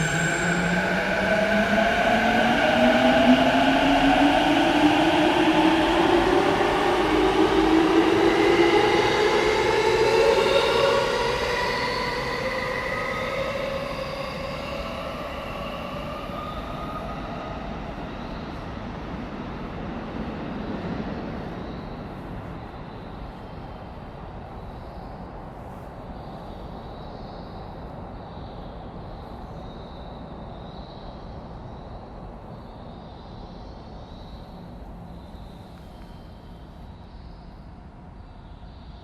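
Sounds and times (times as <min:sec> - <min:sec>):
station ambience: 0:00.0 - 0:25.4
train rumbling: 0:00.0 - 0:29.4.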